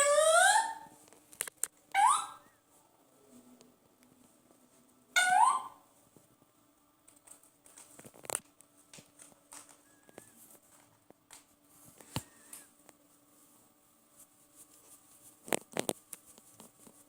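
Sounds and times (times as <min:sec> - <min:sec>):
parrot whistle notes: 0:00.0 - 0:00.9, 0:02.0 - 0:02.6, 0:05.2 - 0:05.8.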